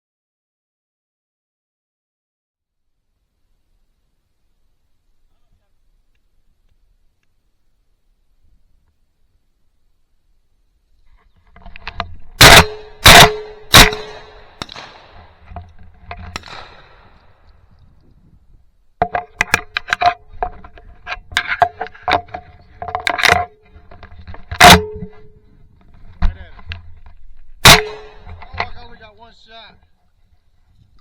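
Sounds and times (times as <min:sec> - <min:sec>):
shotgun blasts: 0:12.4 - 0:15.5, 0:16.3 - 0:17.4, 0:27.6 - 0:28.4.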